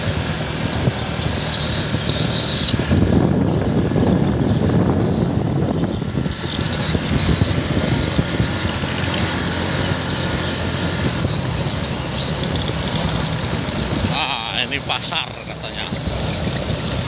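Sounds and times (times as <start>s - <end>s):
motorcycle engine: 0.0s - 17.0s
road noise: 0.0s - 17.0s.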